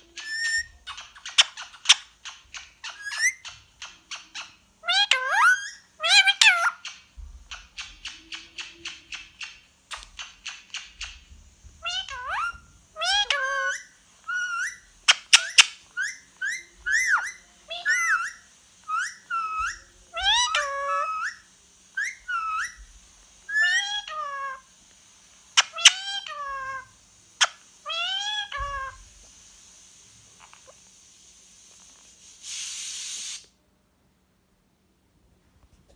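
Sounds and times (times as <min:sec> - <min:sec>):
bird whistled calls: 0:00.0 - 0:02.1, 0:02.8 - 0:03.5, 0:11.8 - 0:22.8.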